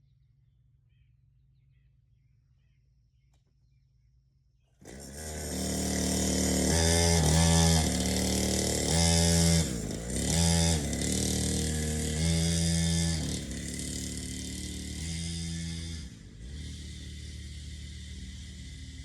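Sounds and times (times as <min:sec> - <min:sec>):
dirt bike engine revving: 0:04.8 - 0:19.0.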